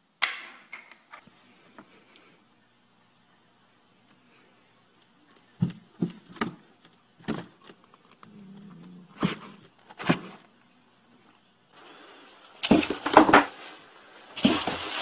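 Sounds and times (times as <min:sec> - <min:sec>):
cats thumping cardboard box: 0:05.6 - 0:07.8, 0:09.1 - 0:10.4.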